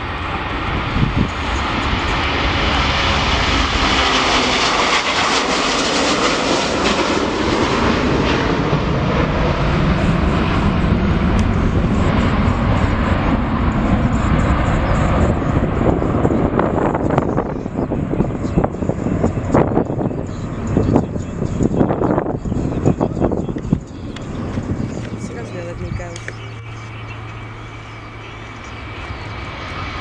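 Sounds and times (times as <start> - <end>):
jet airliner engines passing: 0.0 - 30.0.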